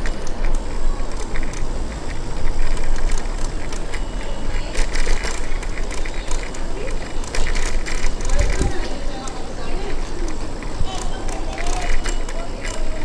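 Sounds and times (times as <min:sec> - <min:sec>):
bicycle clicks and rattles: 0:00.0 - 0:13.0
bicycle tyre noise: 0:00.0 - 0:13.0
wind rush on microphone: 0:08.0 - 0:11.5.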